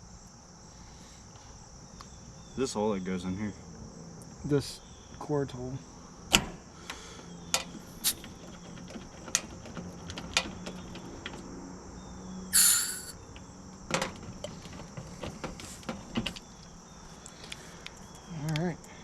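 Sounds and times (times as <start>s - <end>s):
insects trilling: 0.0s - 19.0s
hand tools clicking and knocking: 12.6s - 13.2s
short loud hiss: 12.6s - 13.2s.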